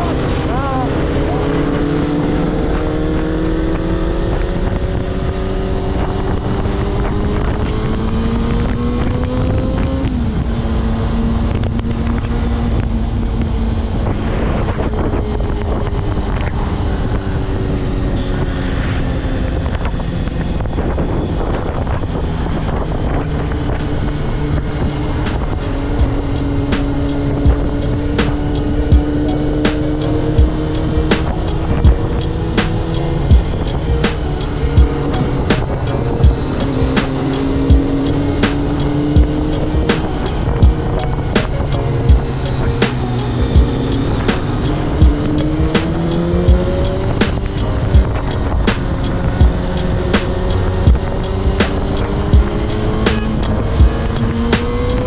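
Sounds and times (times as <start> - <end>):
motorcycle engine revving: 0.0 - 55.0
wind rushing on microphone: 0.0 - 55.0.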